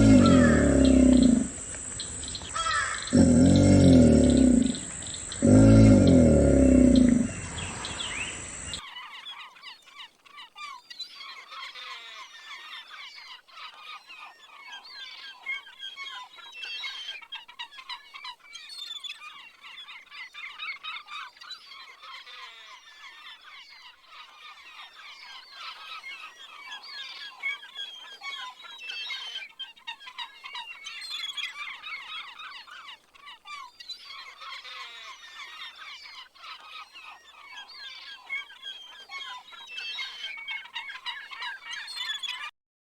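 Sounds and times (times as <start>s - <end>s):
loud low animal call: 0.0s - 8.8s
small birds chirping: 0.0s - 8.8s.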